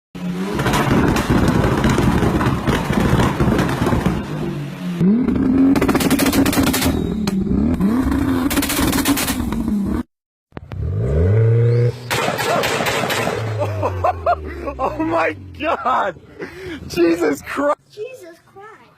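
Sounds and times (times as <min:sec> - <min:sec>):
car engine revving: 0:00.2 - 0:15.7
exhaust crackling pops: 0:00.5 - 0:04.4.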